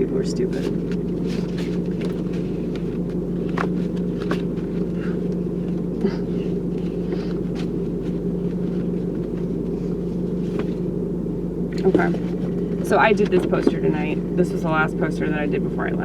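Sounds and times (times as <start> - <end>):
car cabin rumble: 0.0 - 16.0
faint clicks and rustles: 0.5 - 10.9.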